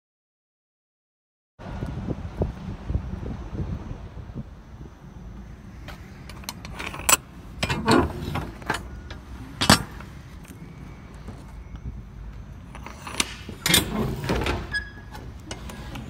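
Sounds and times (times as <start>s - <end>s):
low wind rumble: 1.6s - 16.0s
metal hardware clicking and rattling: 6.2s - 10.1s
metal scraping clatter: 6.2s - 10.2s, 12.6s - 16.0s.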